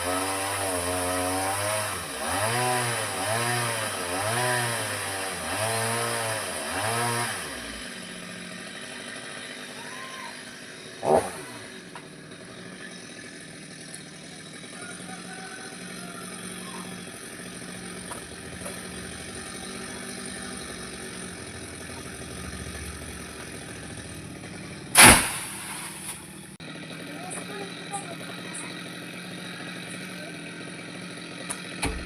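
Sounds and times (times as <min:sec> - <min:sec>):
small engine running: 0:00.0 - 0:32.0
loud sudden noise with falling tone: 0:25.0 - 0:26.2.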